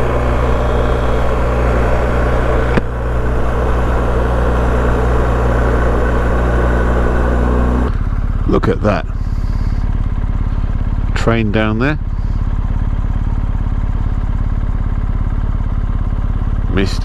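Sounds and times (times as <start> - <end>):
wind and road noise: 0.0 - 8.3
motorcycle engine running: 0.0 - 17.0
sharp click: 1.6 - 3.0.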